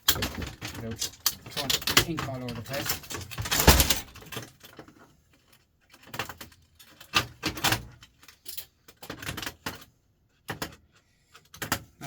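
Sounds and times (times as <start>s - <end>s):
printer parts knocking and rattling: 0.0s - 12.0s.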